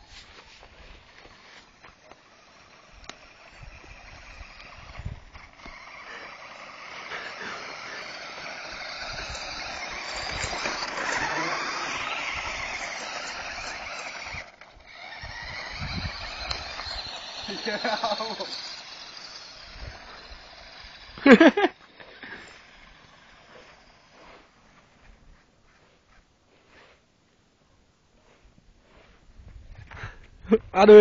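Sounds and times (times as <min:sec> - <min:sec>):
radio-controlled car driving: 0:00.0 - 0:24.6.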